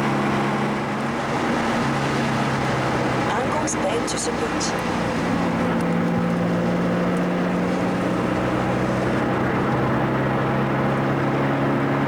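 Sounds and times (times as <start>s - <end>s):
car engine running: 0.0s - 12.0s
road noise: 0.0s - 12.0s.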